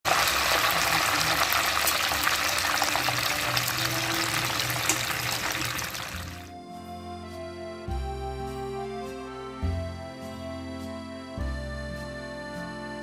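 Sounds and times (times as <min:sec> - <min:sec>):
chicken deep-frying in hot oil: 0:00.0 - 0:06.5.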